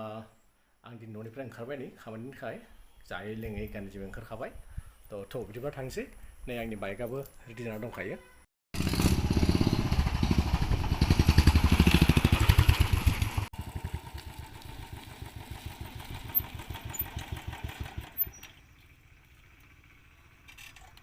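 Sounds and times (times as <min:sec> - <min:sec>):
motorcycle engine running: 0:08.8 - 0:21.0.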